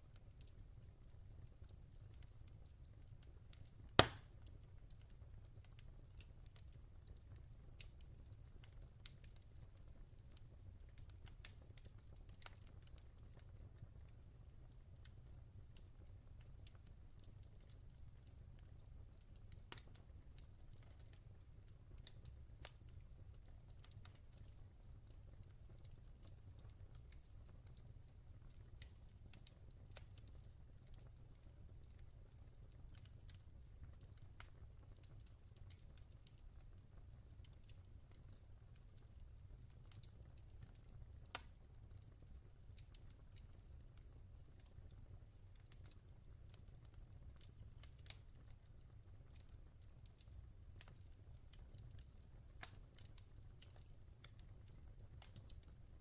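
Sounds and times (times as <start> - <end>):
log fire crackling: 0.0 - 56.0.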